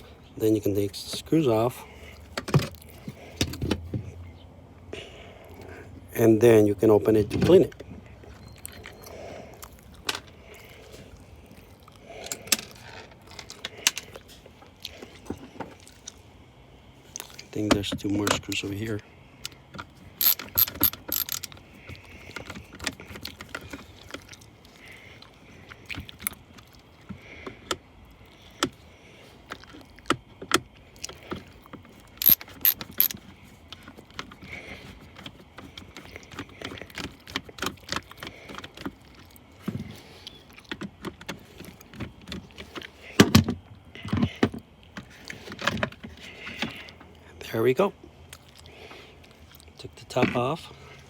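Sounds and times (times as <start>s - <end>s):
screws clicking and ratcheting: 20.2s - 21.5s, 32.2s - 33.2s.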